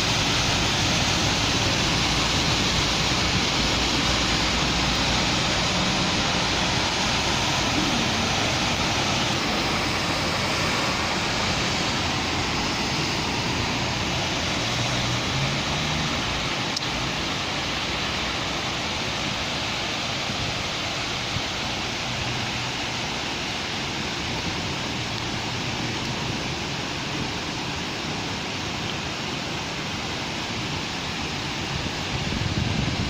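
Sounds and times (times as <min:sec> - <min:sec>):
low traffic rumble: 0:00.0 - 0:33.0
rain falling on street: 0:00.0 - 0:33.0
vehicle passing: 0:00.3 - 0:17.9.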